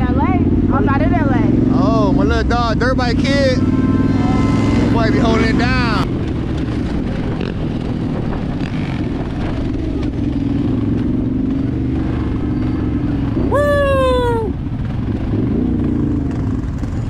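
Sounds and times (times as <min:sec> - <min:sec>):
dirt bike engine running: 0:00.0 - 0:13.4
person shouting woo: 0:13.4 - 0:14.6.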